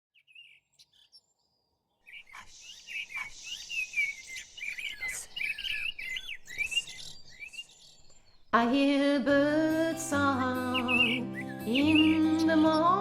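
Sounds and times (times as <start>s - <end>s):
birds chirping and singing: 0.1s - 13.0s.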